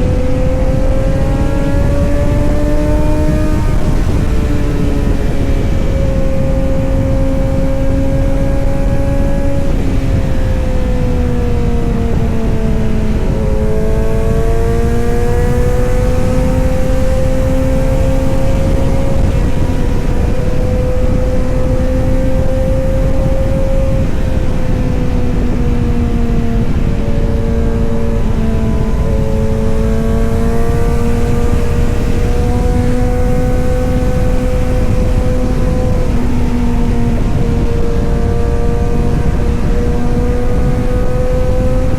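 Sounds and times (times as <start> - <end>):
motorcycle engine and exhaust running: 0.0 - 41.9.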